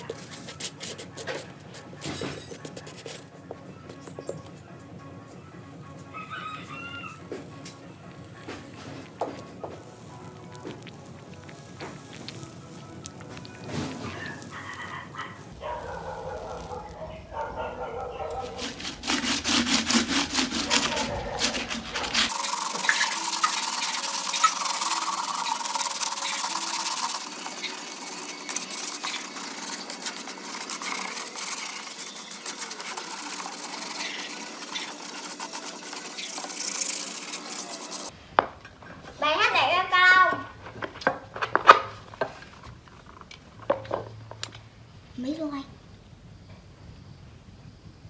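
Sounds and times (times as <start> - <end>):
rubbing and scraping strokes: 0.0 - 3.3, 13.6 - 38.2
steady hissing with faint whine: 7.8 - 17.2.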